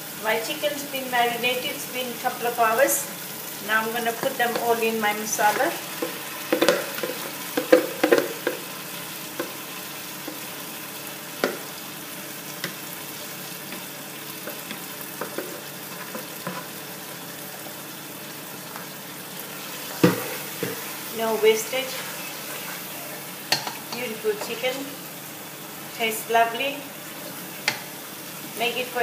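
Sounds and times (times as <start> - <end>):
chicken sizzling in oil: 0.0 - 29.0
spatula scraping bowl and pot: 21.8 - 24.7.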